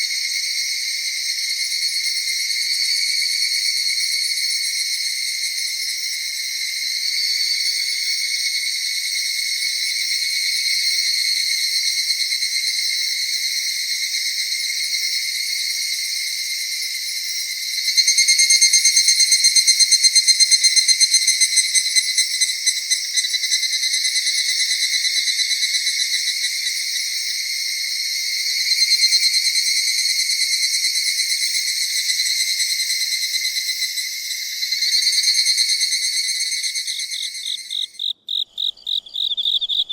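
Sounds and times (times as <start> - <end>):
crickets and insects trilling: 0.0 - 39.9
loud pulsing insect call: 0.0 - 39.9.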